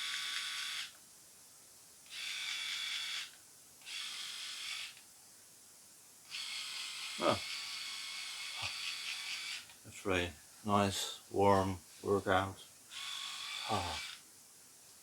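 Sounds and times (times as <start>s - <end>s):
electric shaver buzzing: 0.0s - 0.9s, 2.1s - 5.0s, 6.3s - 9.7s, 12.9s - 14.2s.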